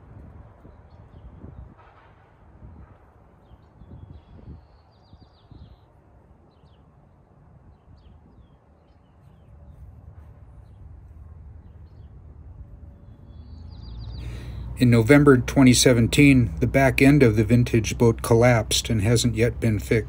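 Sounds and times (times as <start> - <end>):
low outdoor rumble: 0.0 - 20.0
small birds chirping and trilling: 0.6 - 1.8, 2.7 - 14.8.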